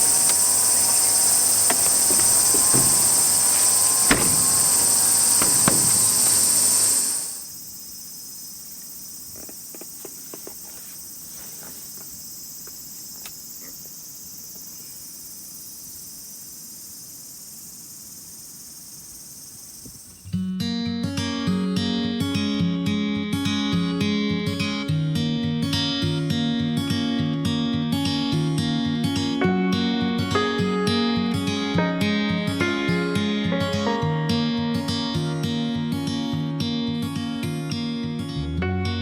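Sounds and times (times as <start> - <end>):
steady whine: 0.0 - 7.5
insects buzzing: 0.0 - 20.3.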